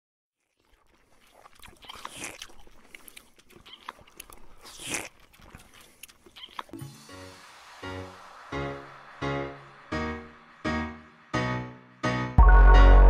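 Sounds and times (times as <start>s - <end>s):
crunching and chewing: 0.4s - 6.8s.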